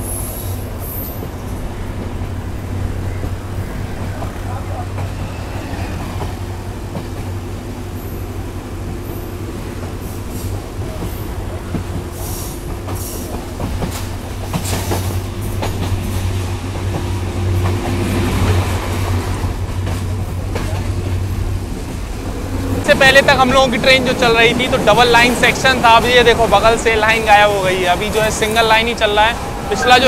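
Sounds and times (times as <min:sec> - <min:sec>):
train running low drone: 0:00.0 - 0:30.0
train wheels clicking over rail joints: 0:08.8 - 0:29.7.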